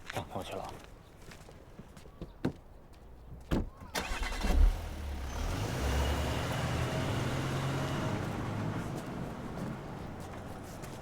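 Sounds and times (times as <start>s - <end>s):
car engine starting and idling: 4.0s - 11.0s.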